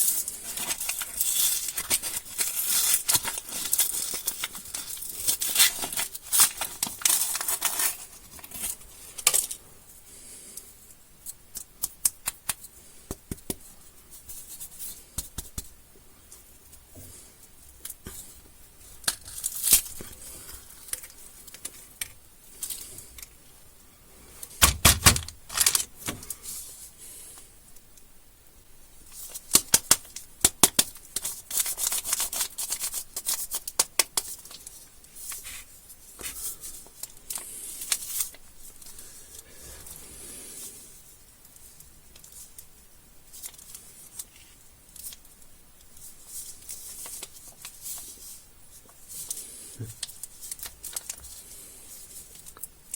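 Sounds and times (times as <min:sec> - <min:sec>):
plastic wrappers crinkling and tearing: 0:00.0 - 0:09.6, 0:19.0 - 0:23.3, 0:24.4 - 0:26.4, 0:29.1 - 0:35.6, 0:36.2 - 0:39.4, 0:43.3 - 0:45.4, 0:46.0 - 0:52.9.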